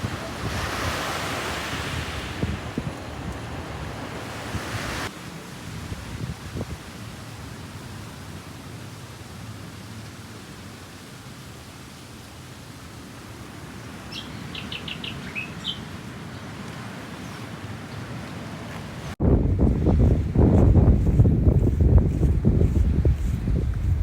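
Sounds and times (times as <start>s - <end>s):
surf: 0.0s - 7.7s
wind: 0.0s - 24.0s
bird chirping: 14.1s - 15.9s.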